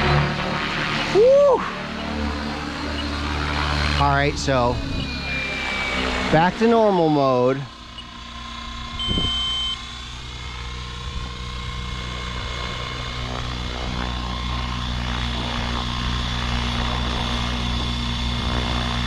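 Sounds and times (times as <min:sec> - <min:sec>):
rc helicopter motor whine: 0:00.0 - 0:19.0
short high beep: 0:04.5 - 0:08.1, 0:09.0 - 0:09.9.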